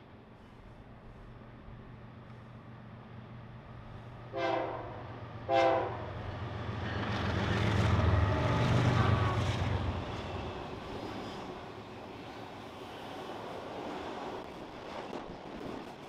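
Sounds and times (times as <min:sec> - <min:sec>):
locomotive air horn blasts: 0:04.3 - 0:06.1.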